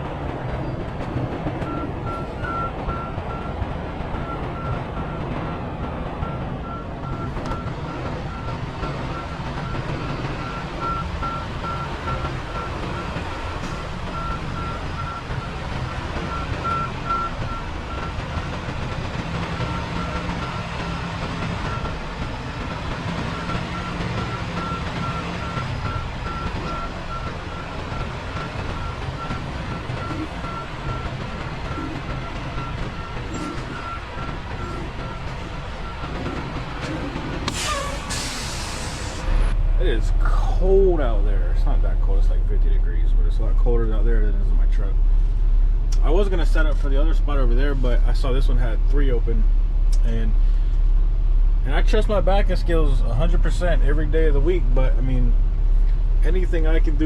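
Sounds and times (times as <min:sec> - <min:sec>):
diesel truck engine rumbling: 0:00.0 - 0:57.0
reversing alarm beeping: 0:01.6 - 0:03.6, 0:06.2 - 0:18.6, 0:19.4 - 0:39.3.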